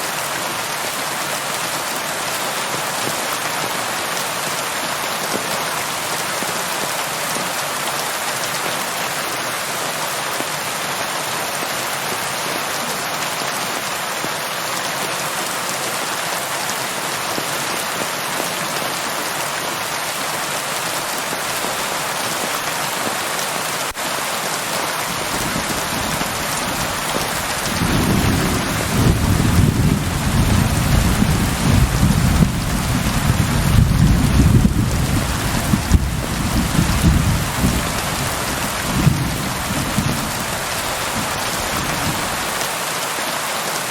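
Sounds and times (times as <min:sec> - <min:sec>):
heavy rain pattering: 0:00.0 - 0:43.9
thunder rumble: 0:25.3 - 0:42.3.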